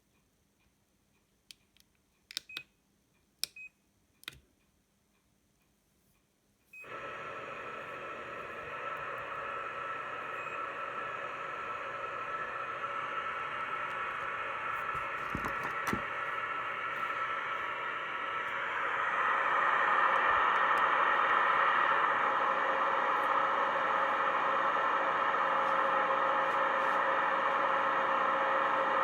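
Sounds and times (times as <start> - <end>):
loudspeaker static hiss: 7.6 - 29.0.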